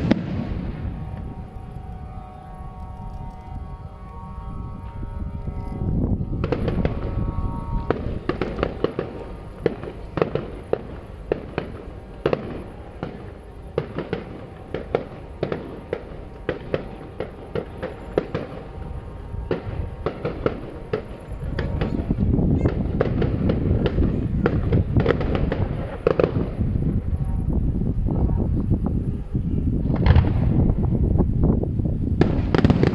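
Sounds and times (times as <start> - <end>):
fireworks bangs: 0.0 - 1.7, 6.4 - 27.2, 29.8 - 30.8, 32.2 - 32.9
low rumble: 0.0 - 32.9.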